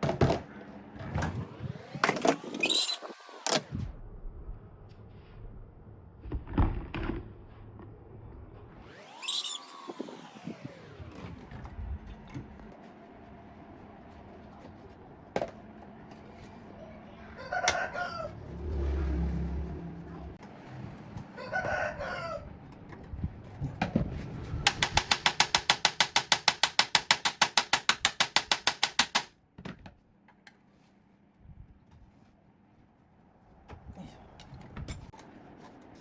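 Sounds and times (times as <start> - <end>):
rooster crowing: 17.2 - 18.6, 21.3 - 22.6.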